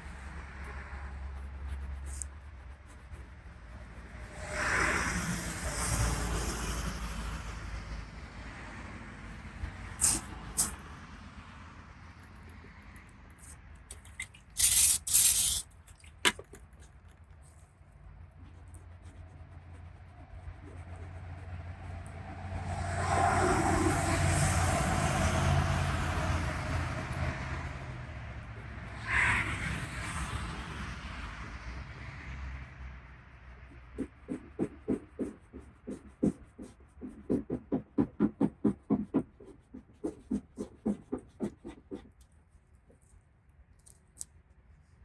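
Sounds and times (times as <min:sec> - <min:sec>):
cloth rubbing car paint: 0:00.0 - 0:04.9, 0:10.0 - 0:10.8, 0:13.4 - 0:22.6, 0:33.7 - 0:43.1.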